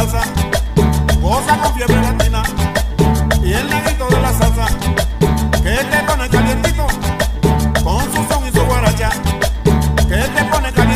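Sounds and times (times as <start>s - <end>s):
upbeat latin music with percussion: 0.0s - 10.9s.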